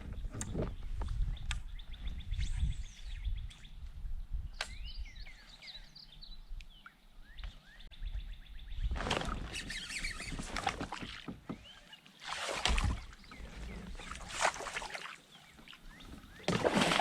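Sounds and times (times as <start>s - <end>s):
birds chirping and calling: 4.6s - 16.6s.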